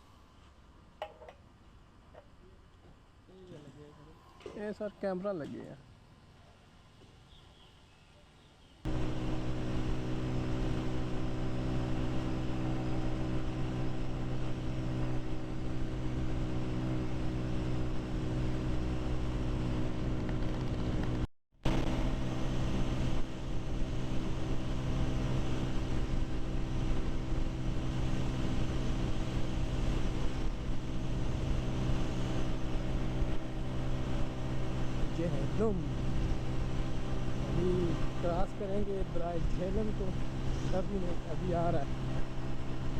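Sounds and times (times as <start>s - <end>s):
motorcycle engine running: 8.9s - 42.9s
wind and road noise: 8.9s - 42.9s.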